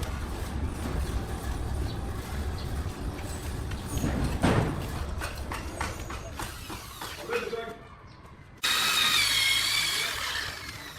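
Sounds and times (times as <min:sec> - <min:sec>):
knocks and clatter: 0:00.0 - 0:07.2.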